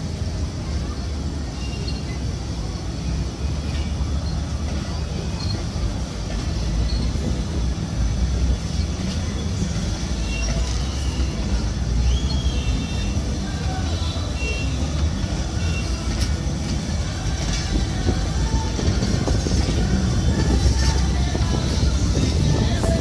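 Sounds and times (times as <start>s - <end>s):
train wheels rumbling on rails: 0.0s - 23.0s
high squeaks: 1.6s - 2.2s, 10.1s - 13.2s.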